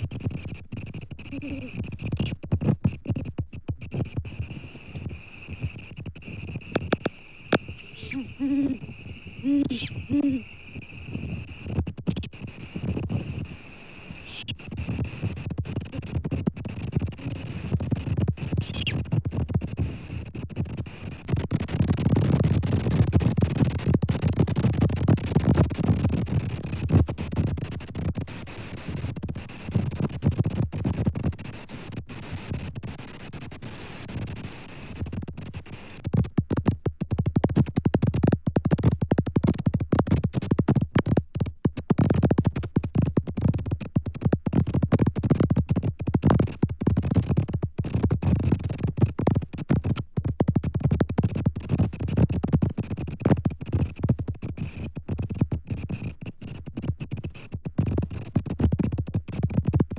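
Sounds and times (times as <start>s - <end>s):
faint hiss: 0.0s - 36.1s.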